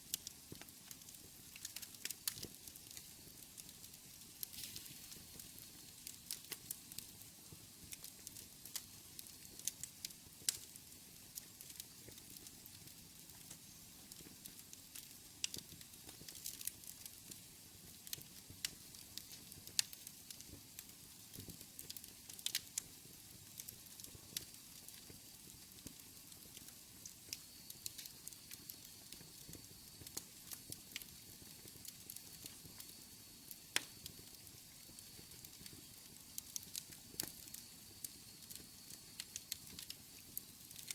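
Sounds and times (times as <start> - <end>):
wood fire crackling and popping: 0.0 - 40.9
faint thin high hiss: 1.4 - 7.9.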